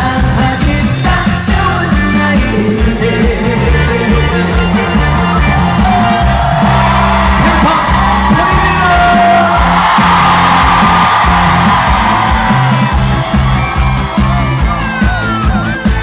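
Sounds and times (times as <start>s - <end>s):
person singing: 0.0s - 6.2s
backing music with beat: 0.0s - 16.0s
audience shouting: 4.1s - 15.9s.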